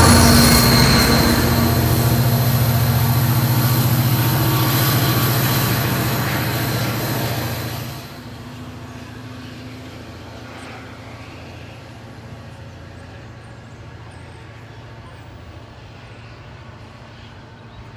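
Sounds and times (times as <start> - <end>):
diesel locomotive engine hum: 0.0 - 17.9.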